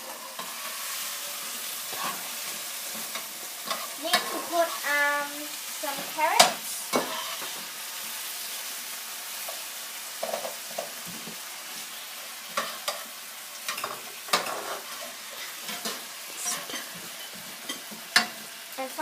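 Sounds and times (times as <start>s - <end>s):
utensil scraping a pan: 0.0s - 4.9s, 6.0s - 7.7s, 13.7s - 18.4s
vegetables sizzling in a pan: 0.0s - 19.0s.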